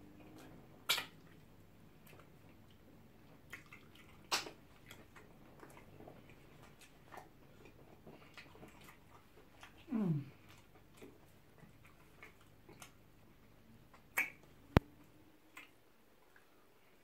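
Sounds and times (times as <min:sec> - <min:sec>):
soft chewing: 0:00.0 - 0:17.0
wet mouth smacks: 0:00.8 - 0:01.4, 0:03.5 - 0:05.8, 0:13.9 - 0:14.8.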